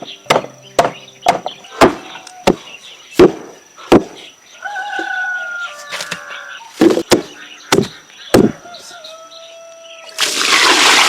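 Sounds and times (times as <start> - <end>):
sharp chopping strikes: 0.3 - 2.6, 3.2 - 4.2, 6.8 - 8.6
rooster crowing: 1.6 - 2.8, 4.6 - 6.7, 8.4 - 10.1.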